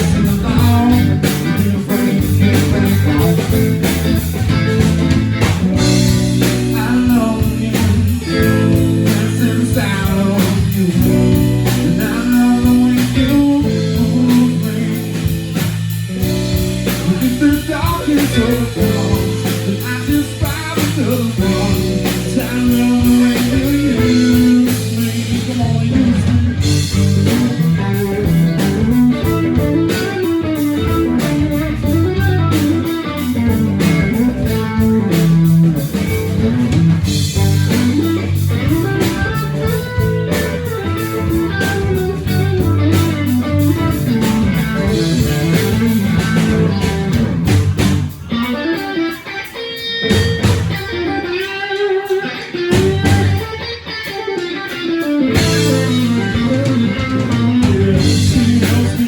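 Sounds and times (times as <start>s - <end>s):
bass guitar: 0.0s - 59.0s
drums: 0.0s - 59.0s
electric guitar: 0.0s - 59.0s.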